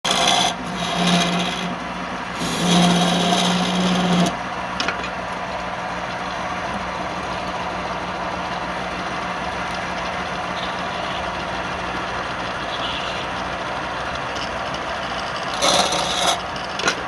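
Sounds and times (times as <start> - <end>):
turning tool cutting wood: 0.0 - 4.4, 10.4 - 17.0
wood lathe motor hum: 0.0 - 17.0.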